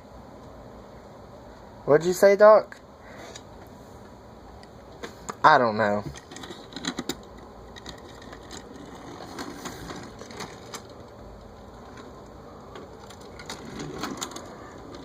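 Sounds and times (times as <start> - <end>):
toy cars clicking and rattling: 6.1 - 15.0.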